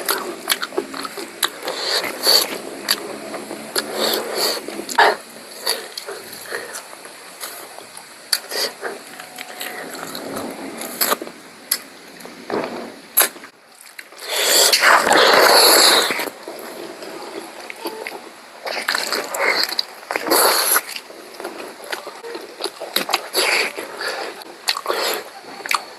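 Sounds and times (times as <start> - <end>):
chewing and smacking: 0.0 - 11.9, 13.2 - 25.9
loud breathy rush: 1.4 - 13.5.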